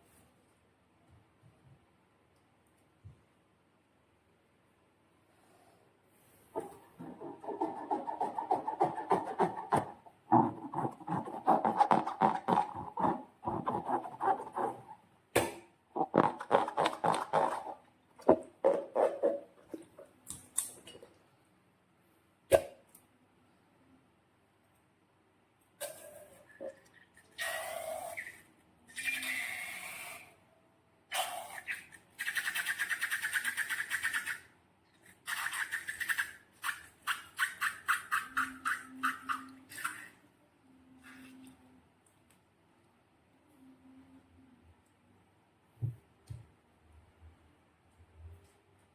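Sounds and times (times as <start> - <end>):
slime squelching: 6.6 - 19.3.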